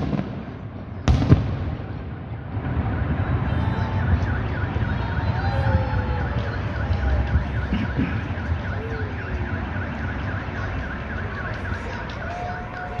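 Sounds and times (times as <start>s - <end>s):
car alarm warbling: 2.7s - 13.0s.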